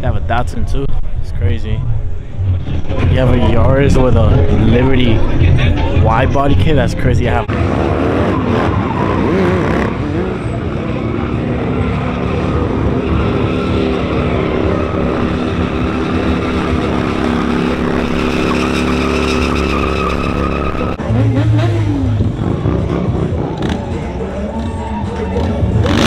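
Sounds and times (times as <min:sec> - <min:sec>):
car engine at high revs: 0:07.4 - 0:24.0
tires squealing: 0:07.5 - 0:26.0.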